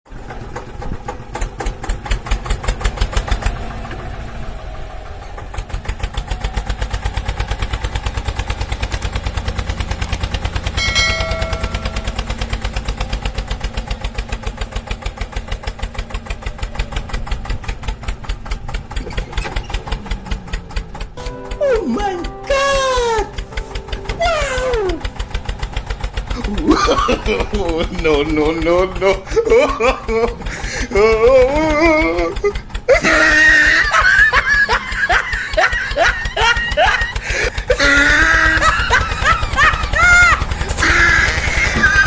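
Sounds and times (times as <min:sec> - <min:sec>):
small engine throbbing: 0:00.1 - 0:42.0
short pitched tone: 0:10.8 - 0:12.3.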